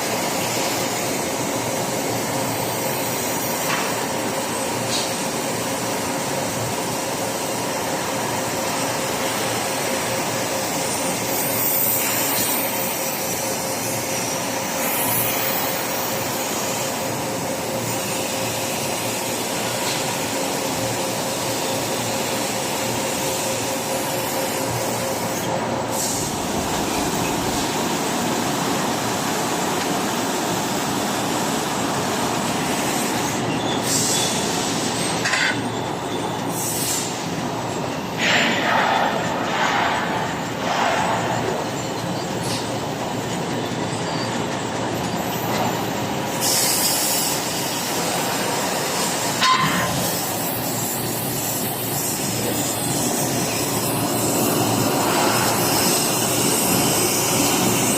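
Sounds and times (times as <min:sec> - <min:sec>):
machine running with whine: 0:00.0 - 0:36.5.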